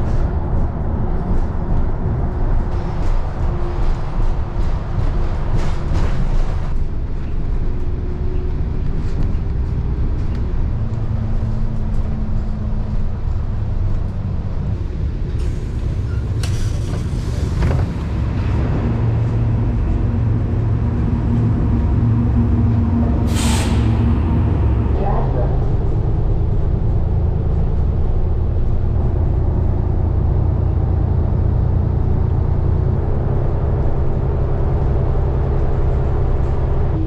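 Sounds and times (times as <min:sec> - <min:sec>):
bus engine rumbling: 0:00.0 - 0:37.0
air brake hiss: 0:23.3 - 0:24.2.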